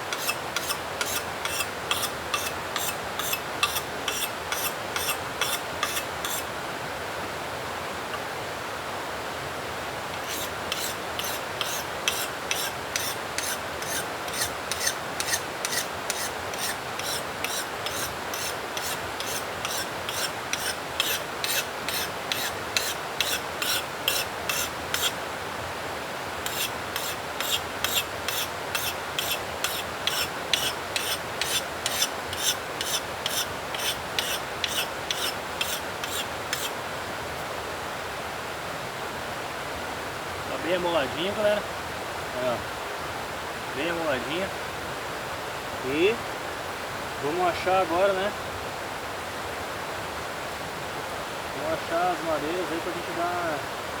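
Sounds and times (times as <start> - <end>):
axe scraping on whetstone: 0.0 - 6.5, 10.1 - 25.2, 26.4 - 36.8.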